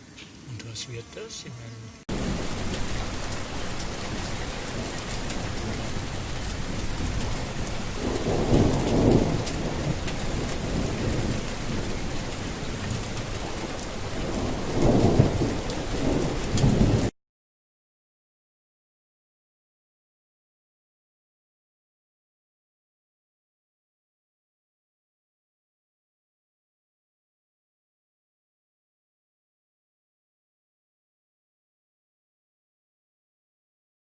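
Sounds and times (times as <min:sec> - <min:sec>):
heavy rain: 0:02.1 - 0:17.1
thunder rolling: 0:02.1 - 0:17.1.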